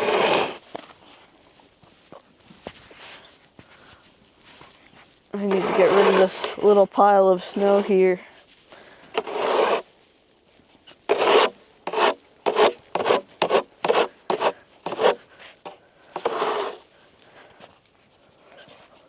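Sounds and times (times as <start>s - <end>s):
snow shovel scraping on ice: 0.0s - 0.9s, 5.4s - 8.2s, 9.0s - 9.9s, 11.0s - 16.9s.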